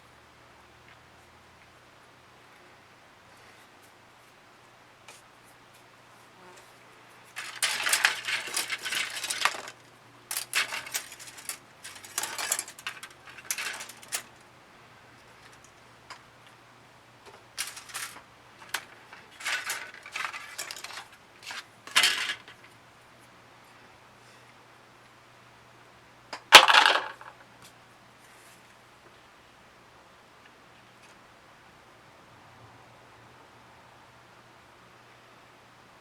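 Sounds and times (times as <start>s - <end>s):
small hard objects clattering: 7.3s - 14.4s, 17.5s - 22.7s, 26.4s - 27.4s.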